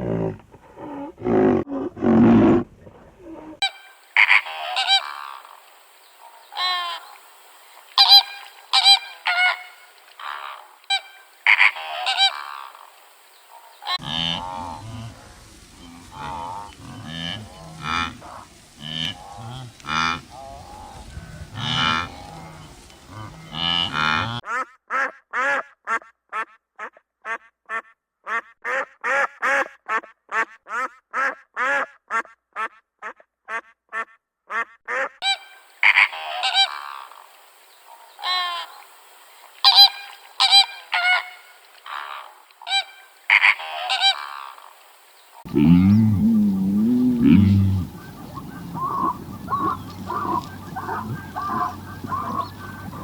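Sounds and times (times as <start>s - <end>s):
harsh bird calls: 3.6s - 14.1s, 35.2s - 53.0s.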